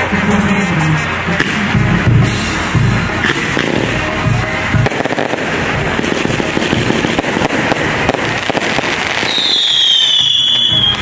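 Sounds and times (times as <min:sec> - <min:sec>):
fireworks crackling and popping: 0:00.0 - 0:11.0
high firework whistle: 0:08.1 - 0:11.0.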